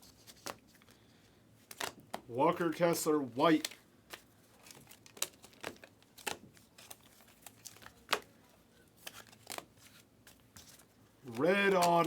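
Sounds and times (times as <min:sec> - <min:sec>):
cards being flipped: 0:01.7 - 0:02.2, 0:09.0 - 0:12.0.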